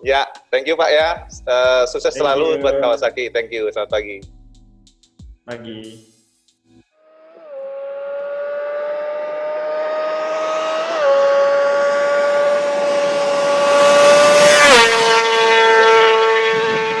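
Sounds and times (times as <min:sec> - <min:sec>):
motorcycle engine screaming at high revs: 0:07.0 - 0:17.0.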